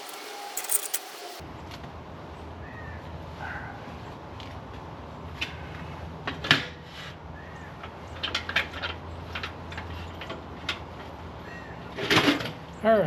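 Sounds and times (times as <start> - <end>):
steel pieces clinking: 0.0 - 1.4.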